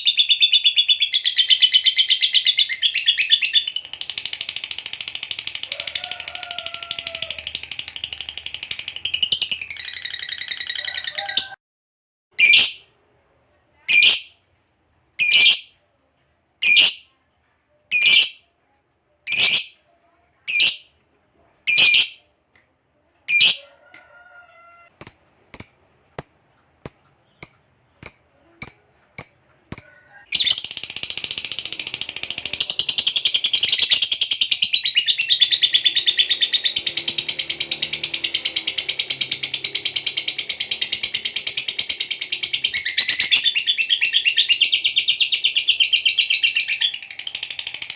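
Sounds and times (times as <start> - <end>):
lovebird calling and trilling: 15.2 - 15.7, 17.9 - 18.4, 19.3 - 19.8, 21.7 - 22.2, 23.3 - 23.6, 24.8 - 47.9.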